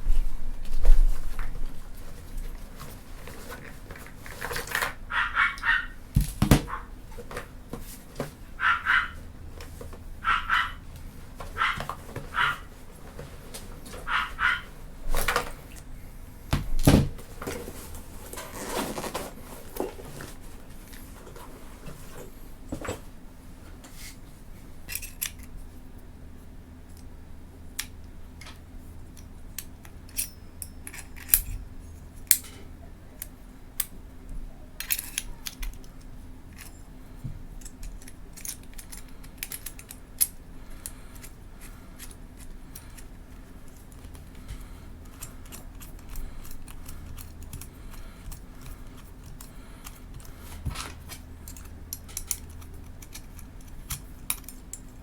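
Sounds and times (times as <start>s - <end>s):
rustling: 0.0s - 15.9s, 16.7s - 23.1s
small parts clicking and clinking: 24.8s - 25.6s, 27.8s - 31.6s, 34.8s - 36.9s, 37.5s - 44.4s, 45.0s - 55.0s.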